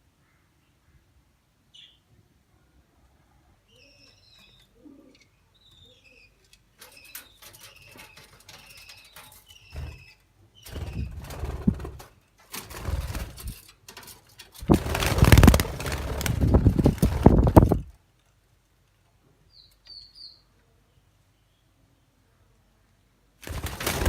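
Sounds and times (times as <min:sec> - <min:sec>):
loud rustling: 0:14.6 - 0:17.9.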